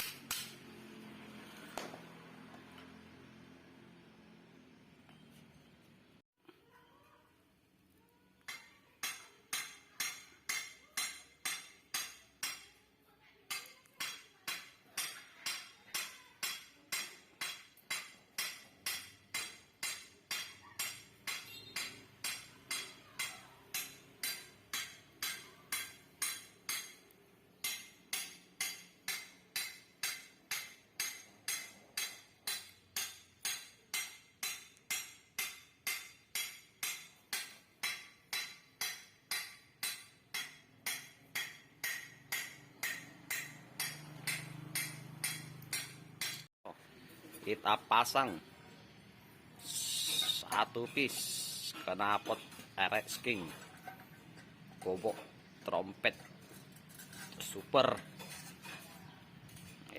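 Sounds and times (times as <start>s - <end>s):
hammer striking metal: 0.0s - 0.7s, 8.5s - 12.8s, 13.5s - 46.5s.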